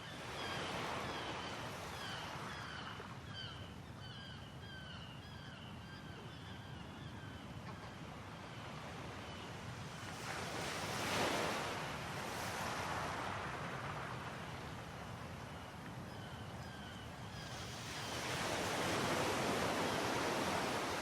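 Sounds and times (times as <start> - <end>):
birds chirping: 0.0 - 7.9
sea waves washing ashore: 8.8 - 16.0, 17.4 - 21.0.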